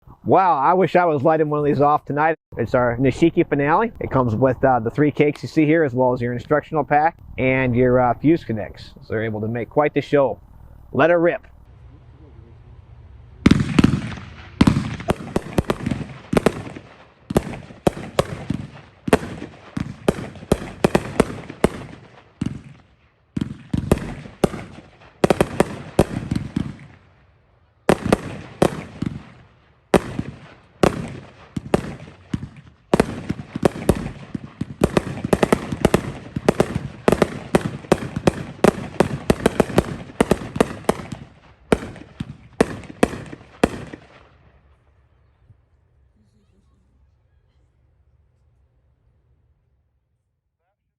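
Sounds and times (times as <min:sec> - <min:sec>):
fireworks volleys: 0:10.5 - 0:27.2, 0:27.8 - 0:44.3.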